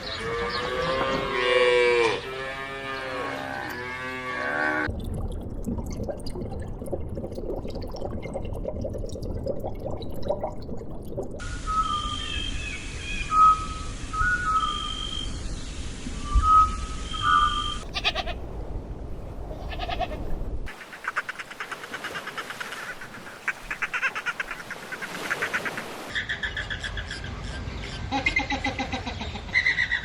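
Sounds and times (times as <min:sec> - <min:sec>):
high whistle-like tone: 0:11.4 - 0:15.5, 0:16.2 - 0:17.8
farm animals bleating: 0:17.8 - 0:18.4, 0:19.6 - 0:20.2.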